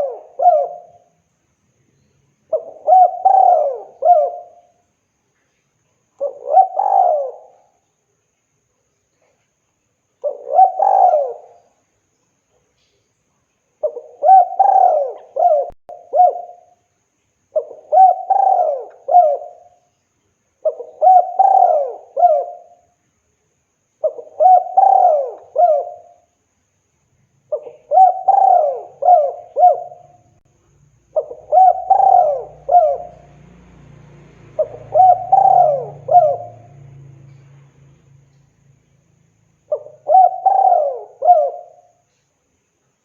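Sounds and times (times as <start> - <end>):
dove cooing: 0.0 - 1.2, 2.5 - 4.8, 6.2 - 7.8, 10.2 - 11.7, 13.8 - 16.8, 17.6 - 19.8, 20.6 - 22.8, 24.0 - 26.3, 27.5 - 30.3, 31.1 - 33.9, 34.5 - 37.5, 39.6 - 42.2.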